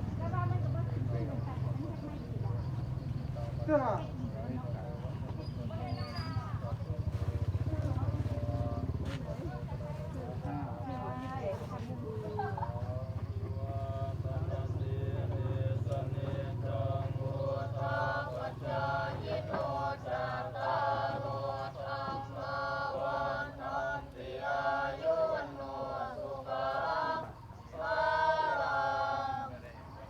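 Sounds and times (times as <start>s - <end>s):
monks chanting together: 12.0s - 30.0s.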